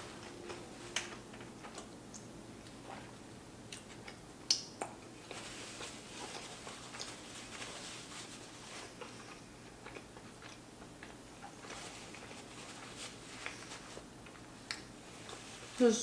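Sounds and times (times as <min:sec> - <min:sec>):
chewing food: 0:00.1 - 0:15.6
paper napkin crackling: 0:05.2 - 0:09.1, 0:11.5 - 0:14.1.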